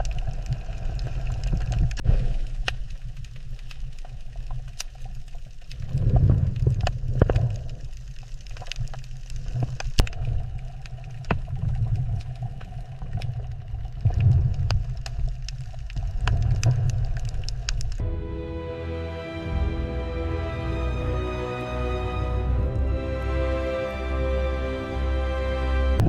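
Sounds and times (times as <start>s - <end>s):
sharp clicks and crackles: 0.0s - 18.0s
underwater low rumble: 0.0s - 21.3s, 21.9s - 25.0s
music with held tones: 18.0s - 26.0s.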